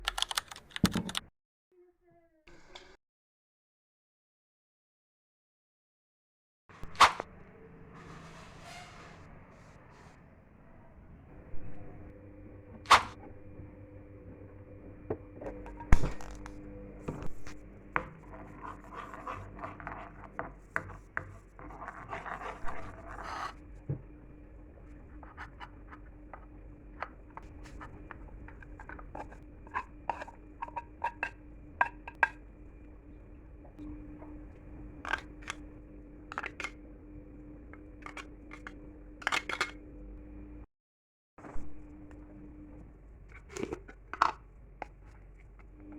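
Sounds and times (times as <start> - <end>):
faint steady hum: 10.8 - 40.7, 41.6 - 45.9.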